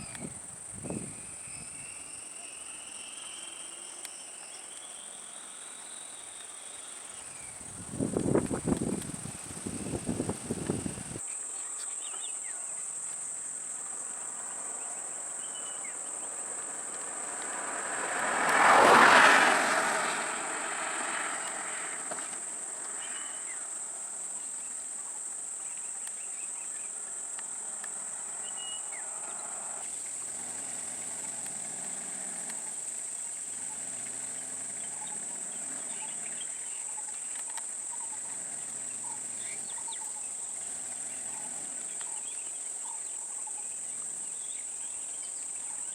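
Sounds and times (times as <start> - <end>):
insects droning: 0.0 - 45.9
vehicle passing: 7.2 - 11.2, 16.2 - 24.0, 27.8 - 36.7, 38.0 - 42.0.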